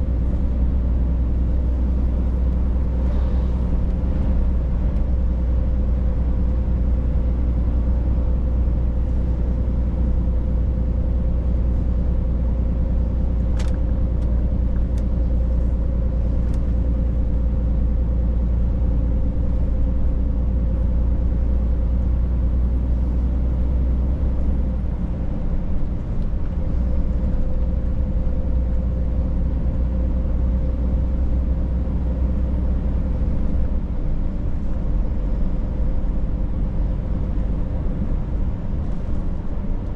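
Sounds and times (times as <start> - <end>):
truck engine and road drone: 0.0 - 39.9.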